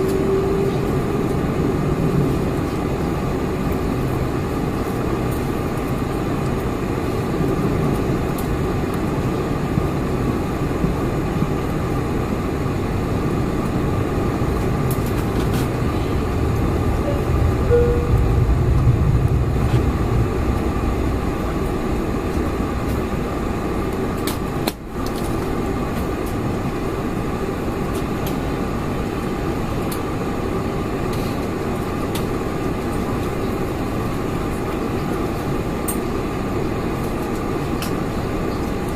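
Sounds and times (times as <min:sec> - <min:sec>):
aircraft cabin engine noise: 0:00.0 - 0:38.9
deep rumble: 0:12.6 - 0:24.7.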